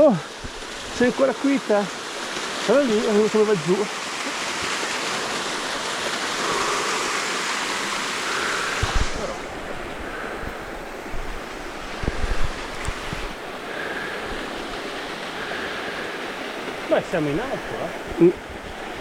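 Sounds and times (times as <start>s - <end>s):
running water rushing: 0.0s - 19.0s
wind buffeting microphone: 8.3s - 13.6s.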